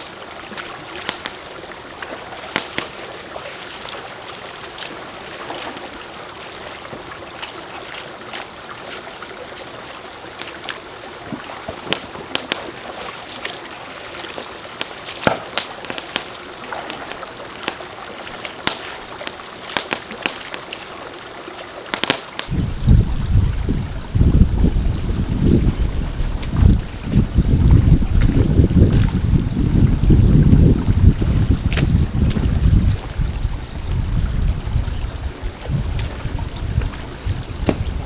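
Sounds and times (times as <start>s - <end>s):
stream water rushing: 0.0s - 38.0s
water clicks and splashes: 0.0s - 38.0s
wind buffeting microphone: 22.5s - 38.0s.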